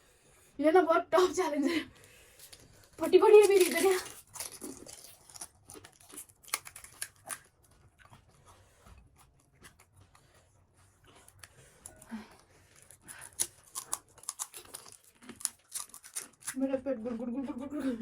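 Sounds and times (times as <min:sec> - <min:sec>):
crisp shells crunching: 0:02.4 - 0:07.7, 0:12.8 - 0:16.6.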